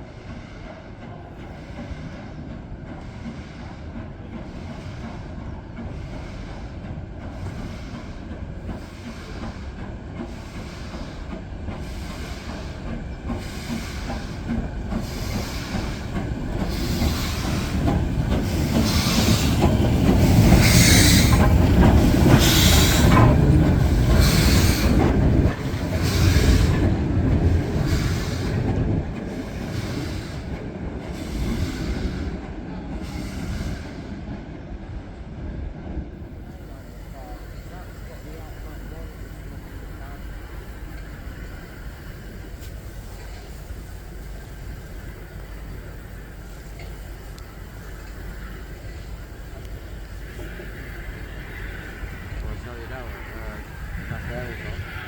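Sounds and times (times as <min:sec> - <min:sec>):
steam locomotive exhaust beating: 0:00.0 - 0:35.0, 0:36.1 - 0:55.0
wheels clattering on rails: 0:01.4 - 0:33.1.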